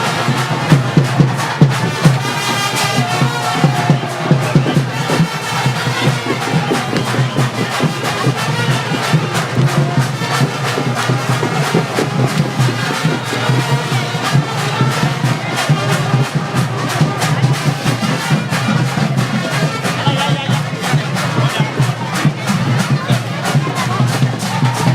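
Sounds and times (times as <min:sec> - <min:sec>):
brass band: 0:00.0 - 0:24.9
driving drum beat: 0:00.0 - 0:24.9.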